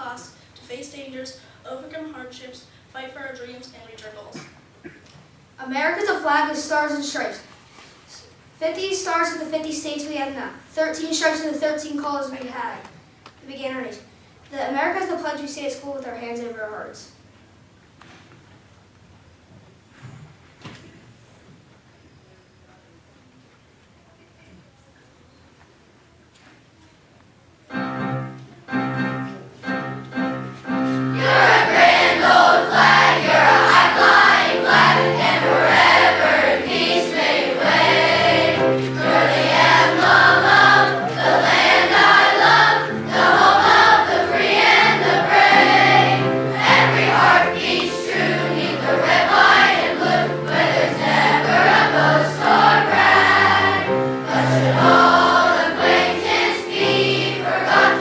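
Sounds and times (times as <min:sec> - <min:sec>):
children's choir singing: 0:27.7 - 0:58.0
instrumental accompaniment: 0:27.7 - 0:58.0.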